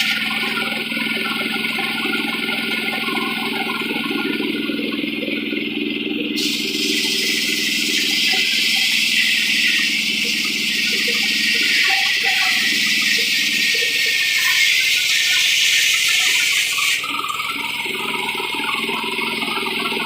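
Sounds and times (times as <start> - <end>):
engine humming: 0.0 - 20.0
hissing rush of noise: 6.3 - 17.0.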